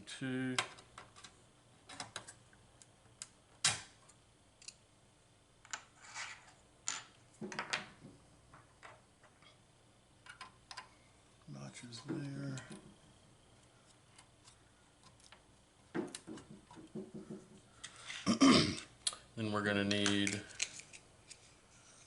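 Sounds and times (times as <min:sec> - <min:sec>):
small clicks of chips being handled: 0:19.8 - 0:21.6.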